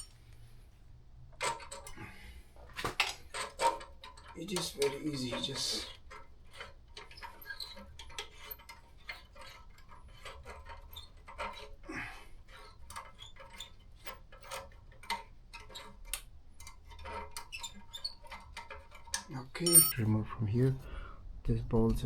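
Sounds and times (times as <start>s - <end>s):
hand tools clicking on metal: 19.7s - 20.0s.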